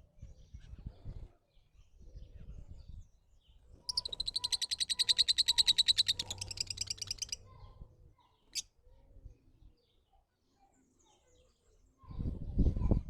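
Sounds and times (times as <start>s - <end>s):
bird trilling: 3.9s - 7.6s.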